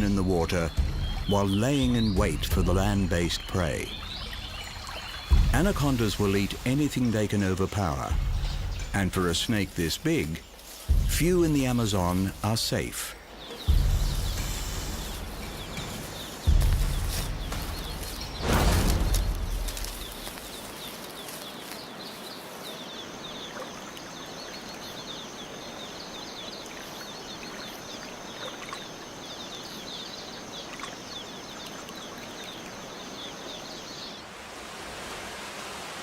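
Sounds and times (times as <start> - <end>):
steady hiss: 0.0 - 23.4
high chirping calls: 0.0 - 34.2.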